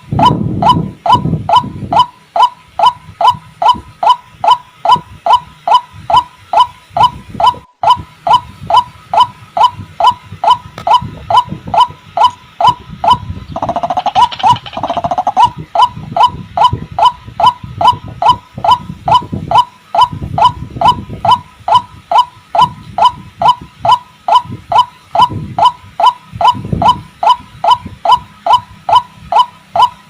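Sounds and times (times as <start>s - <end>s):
waterhen calling: 12.3s - 15.9s.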